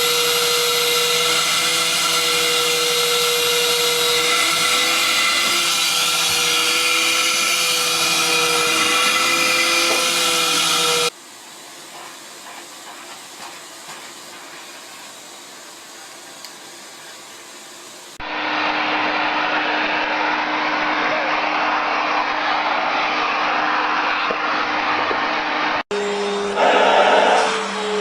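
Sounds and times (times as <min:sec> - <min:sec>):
vacuum cleaner motor: 0:00.0 - 0:11.2, 0:18.2 - 0:28.0.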